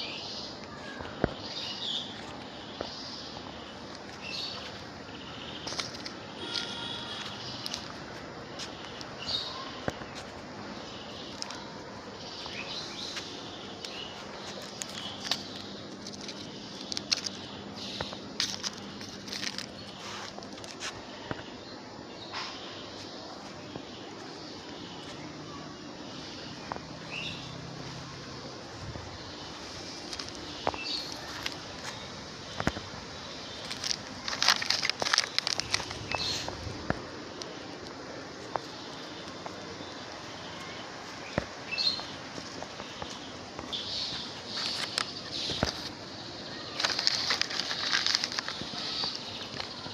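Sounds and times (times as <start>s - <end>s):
birds chirping: 0.0s - 49.9s
insects calling: 0.0s - 49.9s
rustling: 13.0s - 21.0s, 28.7s - 39.6s, 42.0s - 49.9s.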